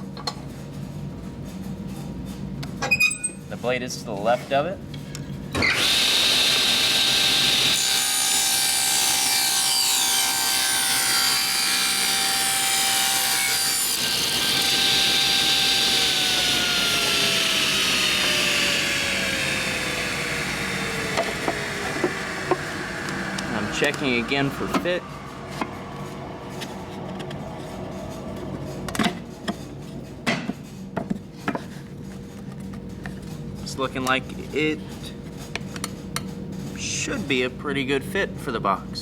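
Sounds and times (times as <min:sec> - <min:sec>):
table saw cutting wood: 0:05.6 - 0:27.5
saw blade spinning down: 0:10.5 - 0:25.0.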